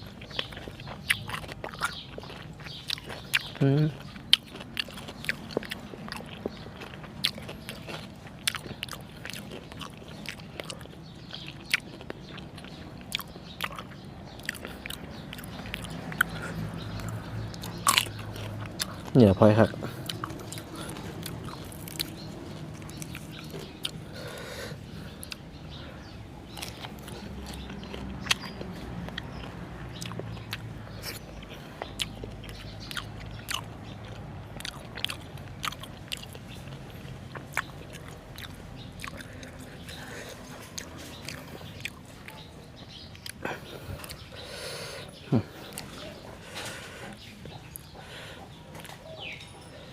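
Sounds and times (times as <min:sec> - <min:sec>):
person chewing raw meat: 0:00.0 - 0:49.9.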